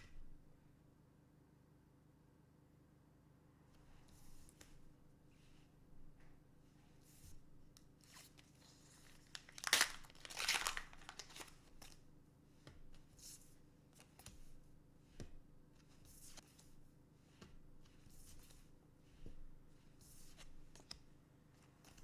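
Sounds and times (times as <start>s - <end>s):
foil wrapper crinkling and tearing: 9.0s - 11.6s.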